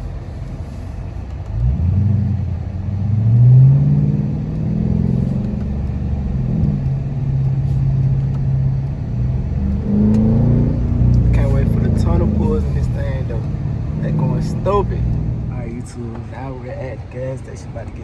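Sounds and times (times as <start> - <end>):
car exhaust accelerating: 0.0 - 18.0.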